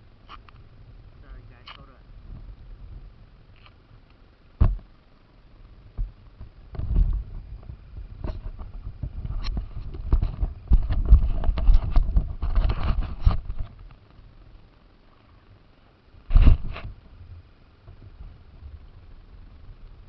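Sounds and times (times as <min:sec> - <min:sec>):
rc car chassis rumbling and rattling: 0:06.4 - 0:13.8.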